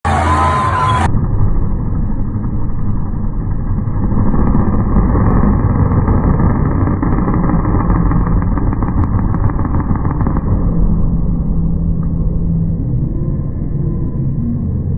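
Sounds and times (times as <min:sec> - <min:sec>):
monster truck engine rumbling: 0:00.0 - 0:14.9
faint crackles: 0:03.6 - 0:10.8.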